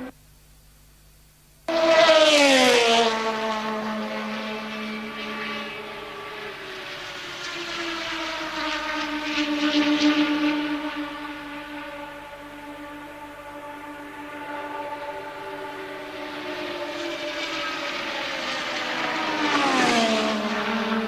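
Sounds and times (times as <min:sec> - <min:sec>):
racing car passing by: 0:01.7 - 0:21.0.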